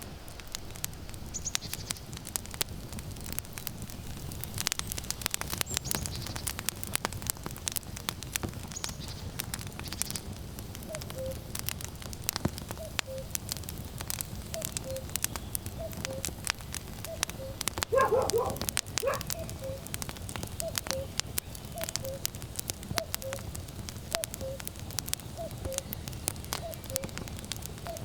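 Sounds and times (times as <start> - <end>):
wood fire crackling: 0.0 - 28.0
cuckoo calling: 10.9 - 11.4, 12.8 - 13.4, 14.6 - 15.2, 15.8 - 16.4, 17.0 - 20.0, 20.6 - 22.3, 22.9 - 23.5, 24.2 - 24.7, 25.3 - 27.2.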